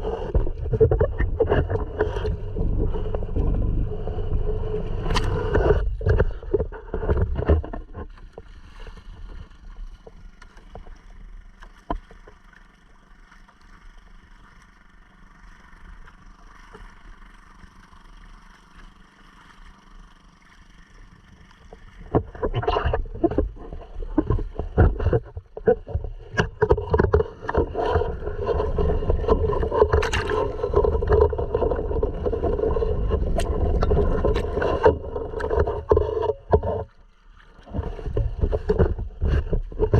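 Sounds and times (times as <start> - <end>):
outboard motor running: 0.0 - 39.9
water splashing: 0.0 - 39.9
knocks against hull: 22.0 - 37.0, 37.7 - 39.9.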